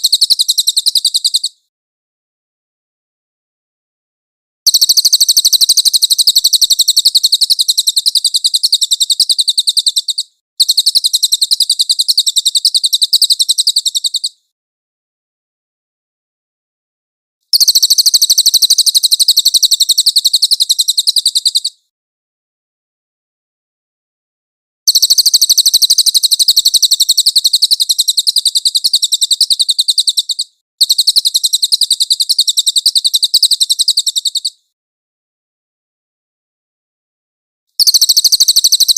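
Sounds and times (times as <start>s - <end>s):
songbird trill: 0.0s - 1.7s, 4.7s - 14.5s, 17.5s - 21.9s, 24.9s - 34.7s, 37.8s - 38.9s.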